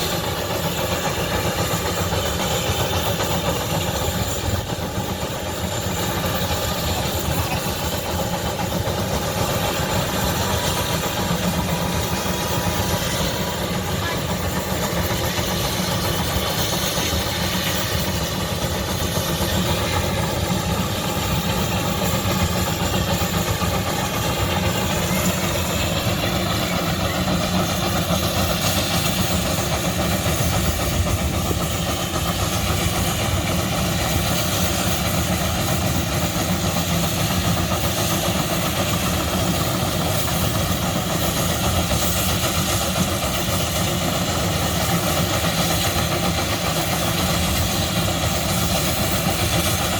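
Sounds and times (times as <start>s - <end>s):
old engine idling: 0.0s - 49.9s.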